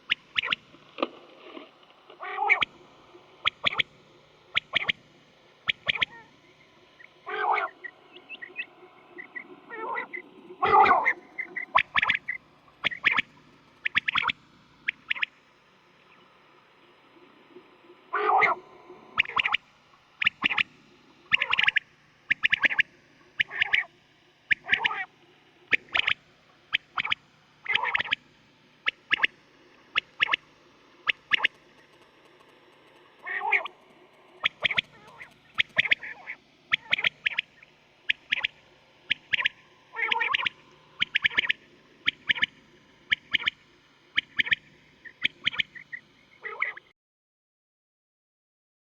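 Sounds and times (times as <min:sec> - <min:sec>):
quail calling: 0:00.0 - 0:00.6, 0:02.2 - 0:02.8, 0:03.4 - 0:03.9, 0:04.5 - 0:05.0, 0:05.6 - 0:15.3, 0:18.1 - 0:19.6, 0:20.2 - 0:20.7, 0:21.3 - 0:23.9, 0:24.5 - 0:25.1, 0:25.7 - 0:28.2, 0:28.8 - 0:29.3, 0:29.9 - 0:31.9, 0:33.2 - 0:33.8, 0:34.4 - 0:43.6, 0:44.2 - 0:46.9
lower wavering bird call: 0:05.7 - 0:13.2, 0:34.4 - 0:42.5.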